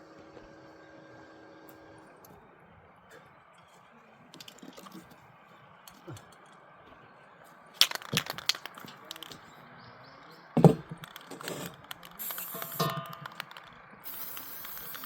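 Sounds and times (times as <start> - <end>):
heavy thump: 10.6 - 11.0
sharp knocks and clicks: 10.6 - 13.7.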